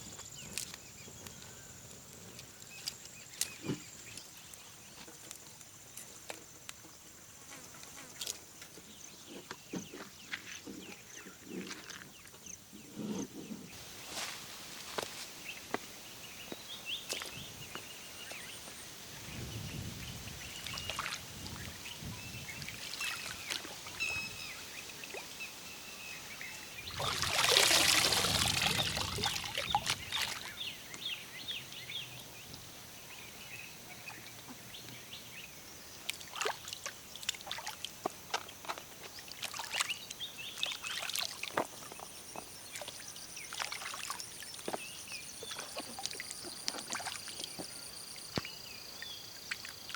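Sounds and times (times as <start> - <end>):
birds chirping: 15.4 - 36.7
rushing pouring noise: 26.8 - 30.0.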